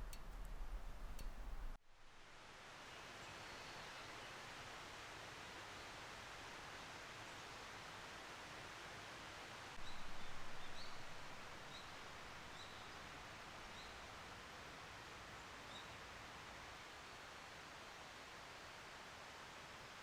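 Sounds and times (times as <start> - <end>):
outdoor ambience hiss: 0.0 - 20.0
small birds chirping: 9.8 - 14.1.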